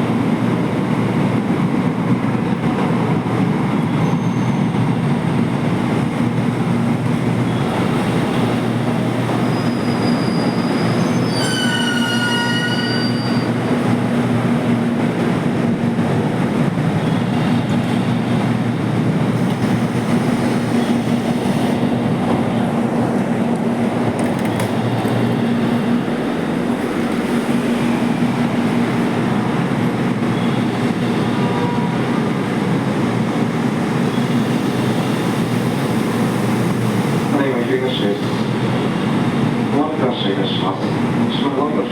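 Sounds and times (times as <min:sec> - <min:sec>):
train running noise: 0:00.0 - 0:41.9
wheels squealing: 0:09.2 - 0:13.6.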